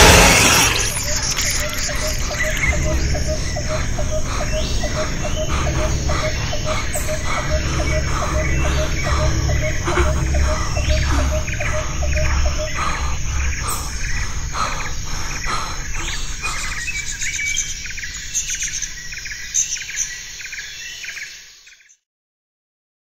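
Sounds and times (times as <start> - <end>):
low rumble: 0.0 - 16.4
insect drone: 0.0 - 21.6
birds chirping and calling: 0.0 - 22.0.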